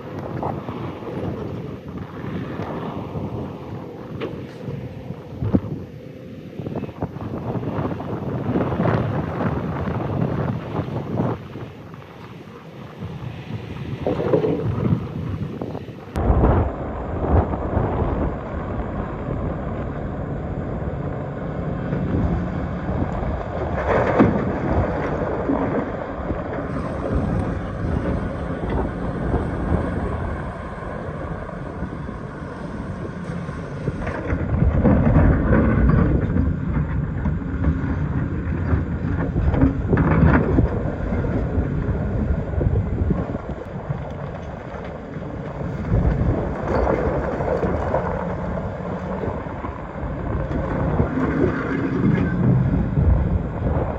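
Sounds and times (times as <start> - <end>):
excavator diesel engine: 0.0 - 10.4, 15.6 - 53.9
excavator digging rock: 17.3 - 53.9.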